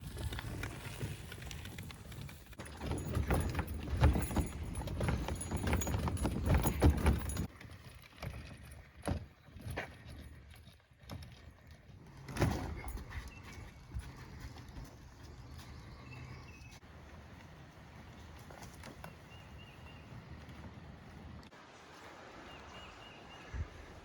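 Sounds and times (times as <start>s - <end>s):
knocking and clattering: 2.6s - 7.5s.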